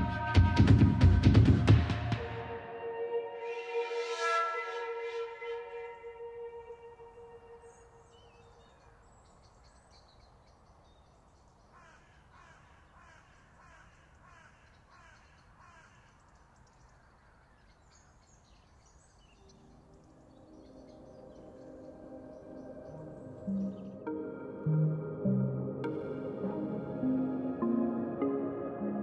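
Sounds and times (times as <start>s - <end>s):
bird calling in falling calls: 4.7s - 24.1s
small birds chirping faintly: 5.8s - 29.0s.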